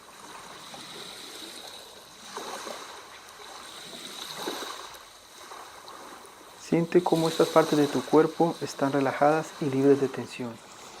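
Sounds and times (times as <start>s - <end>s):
sea waves washing in: 0.0s - 11.0s.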